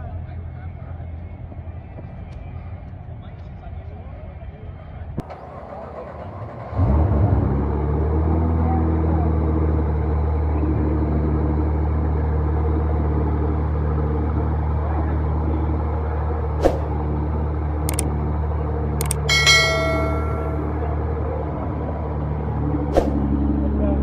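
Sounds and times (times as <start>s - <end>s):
sharp clicks: 19.0s - 19.3s
short ringing tone: 19.0s - 20.8s.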